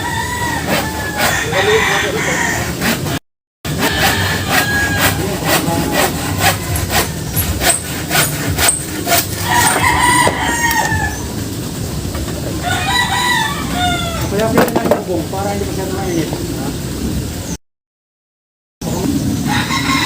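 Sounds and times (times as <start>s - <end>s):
rooster crowing: 0.0s - 3.0s, 3.7s - 7.4s, 9.4s - 11.4s, 12.6s - 14.5s, 19.5s - 20.0s.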